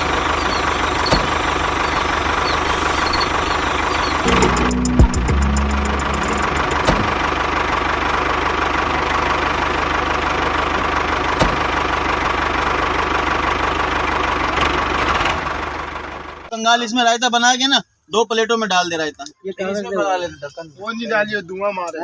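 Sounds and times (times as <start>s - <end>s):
engine idling: 0.0s - 16.5s.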